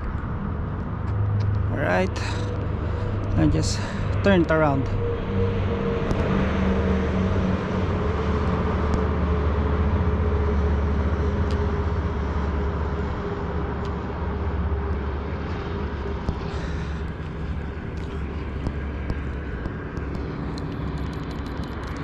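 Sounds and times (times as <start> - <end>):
motor vehicle rumble: 0.0 - 22.0.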